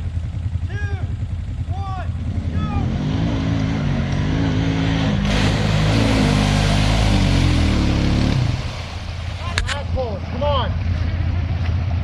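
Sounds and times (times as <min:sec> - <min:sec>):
quad engine revving: 0:02.1 - 0:09.8
mud and water splashing: 0:03.6 - 0:12.0.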